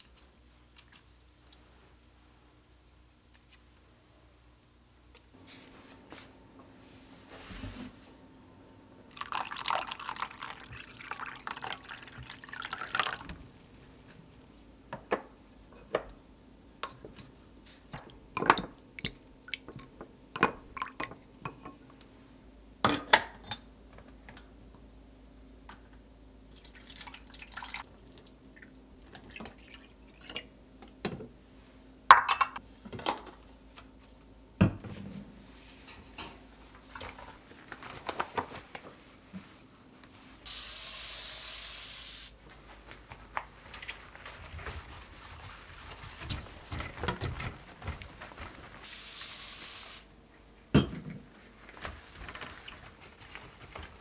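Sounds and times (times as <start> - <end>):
water running: 9.1 - 14.7, 26.5 - 30.5
glass and dishes clinking: 32.1 - 32.6.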